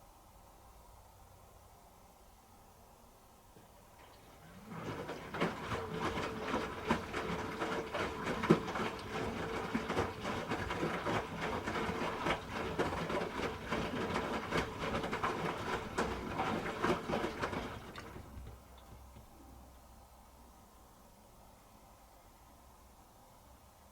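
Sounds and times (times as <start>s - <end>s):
washing machine motor hum: 3.6s - 20.1s.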